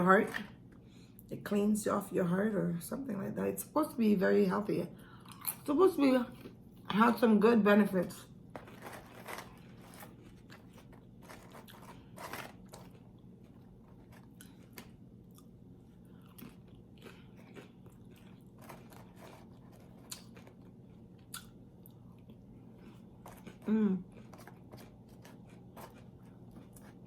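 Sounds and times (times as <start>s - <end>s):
person chewing crunchy food: 8.5s - 27.0s.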